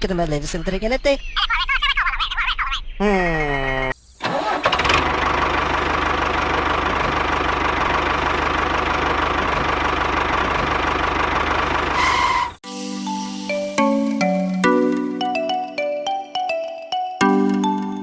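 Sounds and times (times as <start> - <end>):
small engine knocking rhythmically: 4.8 - 11.9.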